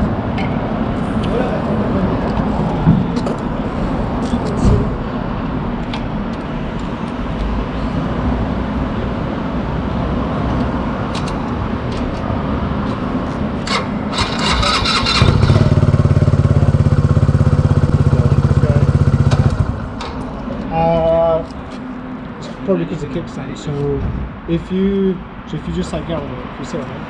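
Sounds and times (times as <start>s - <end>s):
motorcycle engine starting and idling: 13.6s - 20.4s
steady low rumble: 15.2s - 20.7s.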